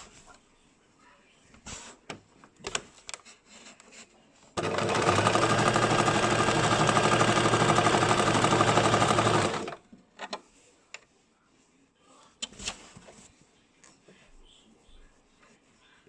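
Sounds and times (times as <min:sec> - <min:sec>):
sewing machine stitching: 0:04.6 - 0:09.8.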